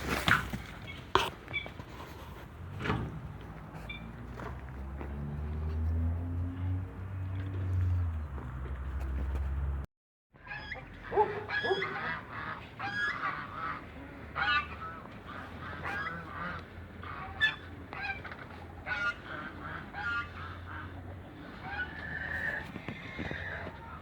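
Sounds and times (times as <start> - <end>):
geese honking: 10.4 - 24.0.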